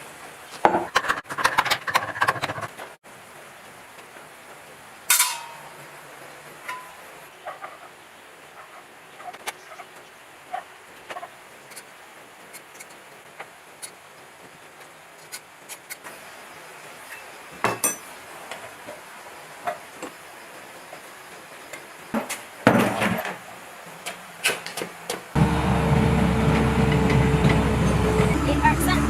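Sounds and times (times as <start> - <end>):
tools and metal parts clinking: 5.1 - 5.7, 17.1 - 18.1.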